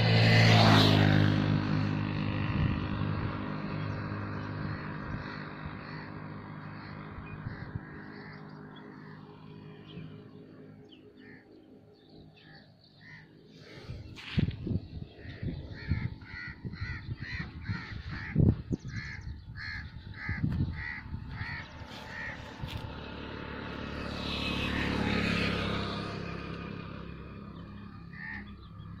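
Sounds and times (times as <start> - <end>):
bird harsh calls: 2.9 - 29.0.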